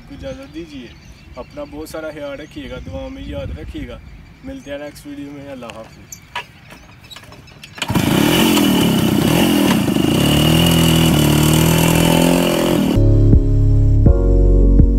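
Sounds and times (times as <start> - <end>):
motorcycle engine revving: 7.7 - 13.0
outro music: 11.9 - 14.9.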